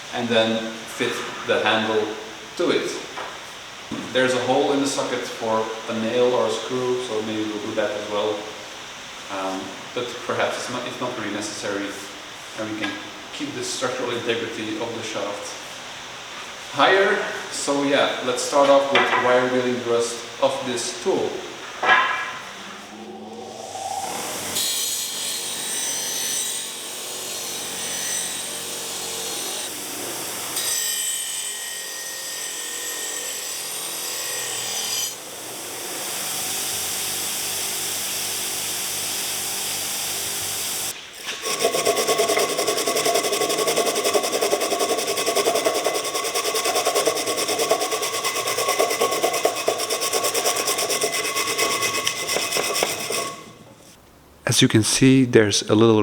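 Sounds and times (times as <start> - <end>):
wire wheel scrubbing rust off metal: 41.4 - 54.0.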